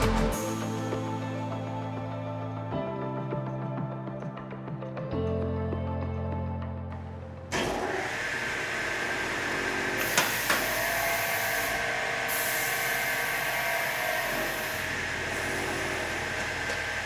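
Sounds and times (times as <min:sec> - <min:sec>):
miter saw whining: 0:07.6 - 0:17.0.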